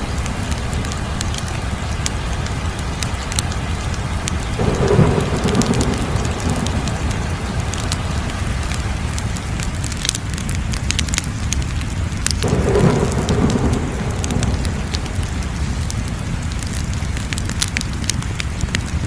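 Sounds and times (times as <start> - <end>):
rushing noise: 0.0 - 10.8, 12.1 - 17.6
wood fire crackling: 0.0 - 19.0.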